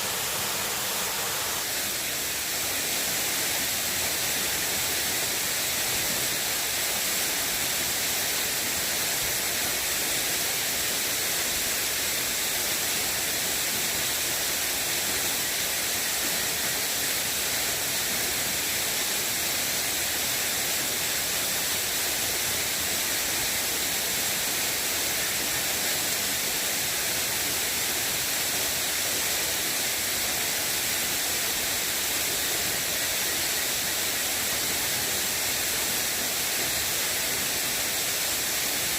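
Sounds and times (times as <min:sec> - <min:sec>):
water hissing: 0:00.0 - 0:07.2.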